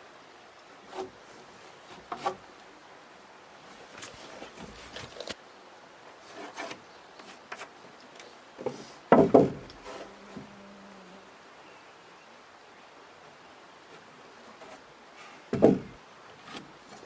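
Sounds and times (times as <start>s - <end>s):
boards and tools scraping: 0.8s - 2.5s, 6.2s - 10.6s, 13.9s - 17.0s
wooden knocks: 8.6s - 10.5s, 15.5s - 16.7s.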